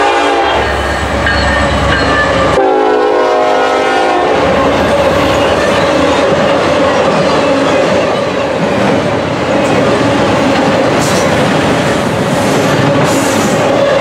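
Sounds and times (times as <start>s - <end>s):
diesel locomotive horn blasts: 0.0s - 1.0s, 2.2s - 4.5s
freight cars rumbling on rails: 0.0s - 14.0s.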